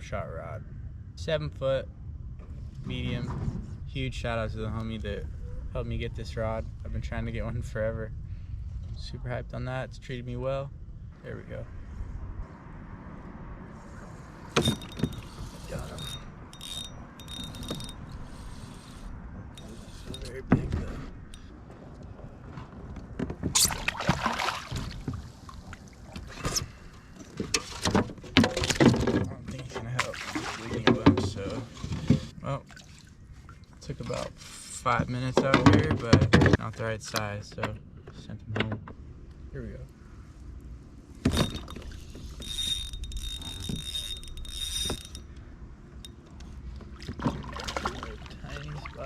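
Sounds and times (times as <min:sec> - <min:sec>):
fishing reel whirring: 0:14.6 - 0:20.3, 0:41.3 - 0:45.3
water splashing: 0:23.5 - 0:26.4, 0:30.0 - 0:31.4, 0:32.6 - 0:33.8, 0:46.9 - 0:49.0.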